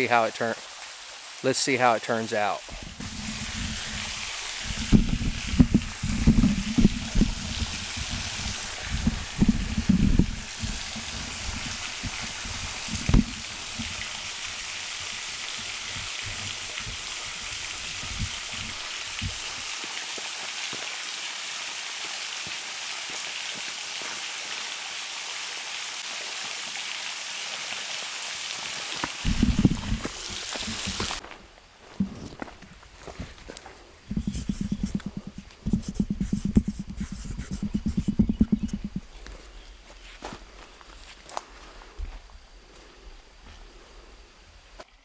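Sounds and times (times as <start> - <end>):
waterfall splashing: 0.0 - 31.2
low knocks and bumps: 2.7 - 19.4, 29.3 - 31.2, 34.1 - 39.1.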